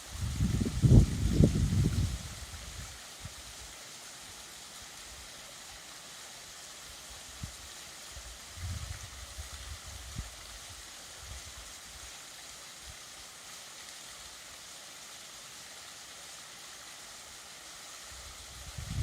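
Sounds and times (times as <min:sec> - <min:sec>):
small waterfall splashing: 0:00.0 - 0:19.0.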